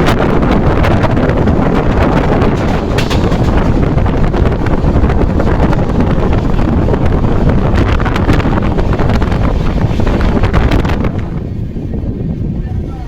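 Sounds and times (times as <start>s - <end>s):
train wheels rumbling on rails: 0.0s - 13.0s
wind buffeting microphone: 0.0s - 13.0s
clicks and rattles: 2.4s - 6.3s.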